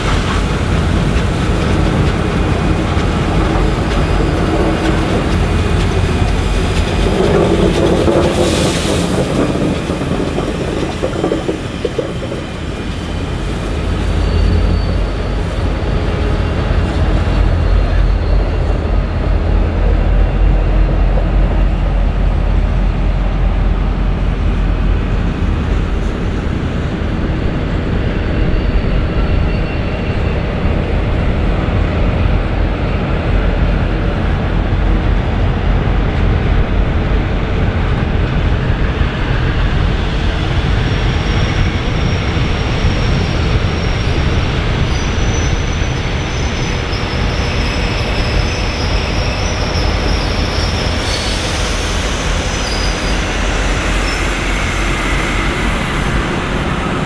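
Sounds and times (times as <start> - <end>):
diesel locomotives passing: 0.0 - 57.0
train carriages rolling by: 0.0 - 57.0
high wheel squeal: 7.0 - 19.4, 40.6 - 57.0.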